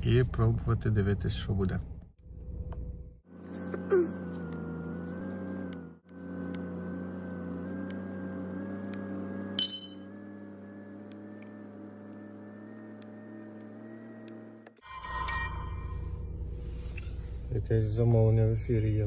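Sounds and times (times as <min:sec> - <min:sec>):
smartphone chime: 0:09.6 - 0:10.0.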